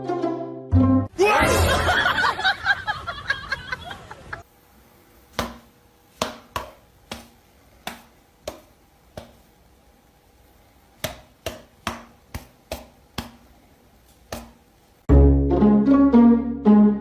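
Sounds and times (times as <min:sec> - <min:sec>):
burst of laughter: 0:01.3 - 0:04.4.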